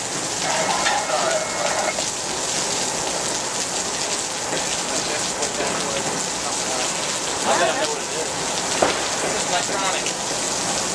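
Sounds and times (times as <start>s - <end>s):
heavy rain falling: 0.0s - 10.9s
faint pitched tone: 0.4s - 2.0s.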